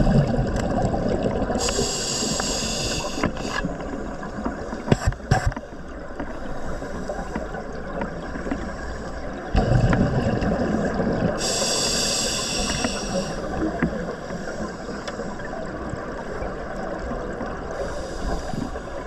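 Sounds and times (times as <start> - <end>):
exhaled bubbles underwater: 0.0 - 4.8, 5.8 - 19.0
regulator inhale hiss: 1.6 - 3.9, 11.4 - 15.6, 17.8 - 19.0.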